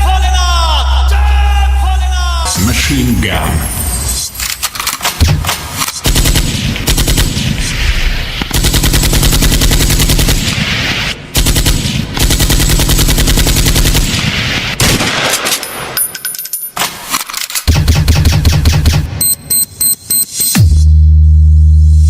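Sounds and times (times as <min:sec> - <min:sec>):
machine-gun fire over speakers: 0:05.2 - 0:15.5.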